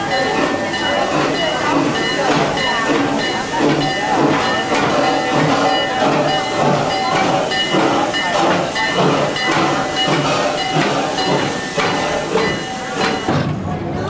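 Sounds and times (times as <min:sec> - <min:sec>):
rhythmic beat of train wheels: 0:00.0 - 0:14.0
train running: 0:00.0 - 0:14.0.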